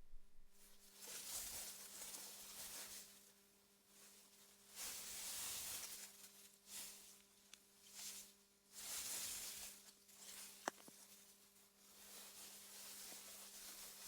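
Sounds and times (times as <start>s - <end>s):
faint low hum: 0.0s - 2.9s.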